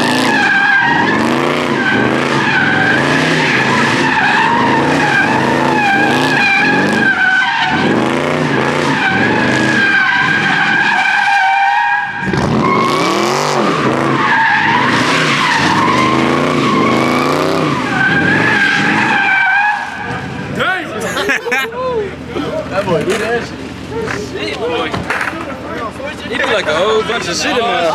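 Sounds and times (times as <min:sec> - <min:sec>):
car engine revving hard: 0:00.0 - 0:11.3, 0:12.0 - 0:21.3
tyres squealing: 0:00.0 - 0:27.9.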